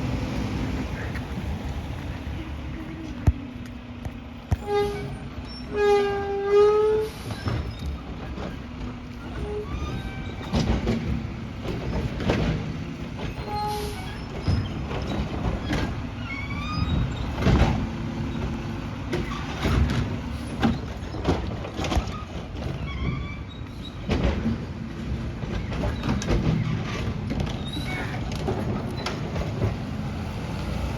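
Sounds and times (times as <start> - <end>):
high squeaks: 4.6 - 11.2, 13.2 - 17.4
garbage truck engine running: 7.0 - 30.9.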